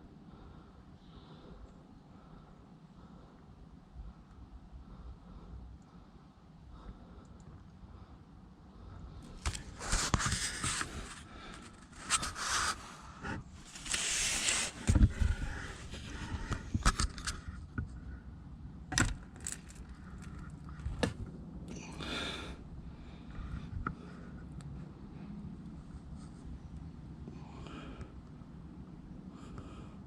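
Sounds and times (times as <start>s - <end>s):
scraping rustles: 9.2s - 17.6s.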